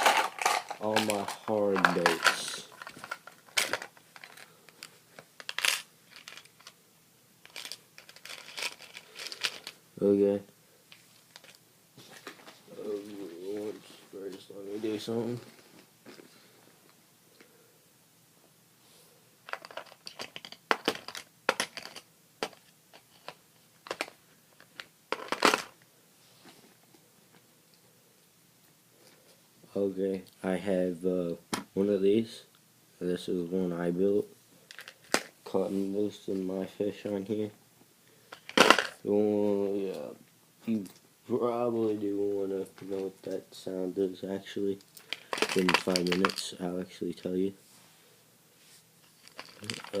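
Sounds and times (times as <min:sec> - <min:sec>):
fishing tackle clicking and clattering: 0:45.0 - 0:46.5, 0:49.2 - 0:50.0.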